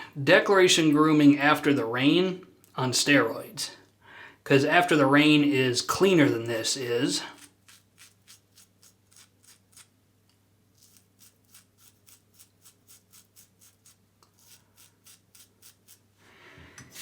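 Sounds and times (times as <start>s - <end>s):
razor scraping stubble: 6.1s - 9.9s, 10.7s - 16.1s.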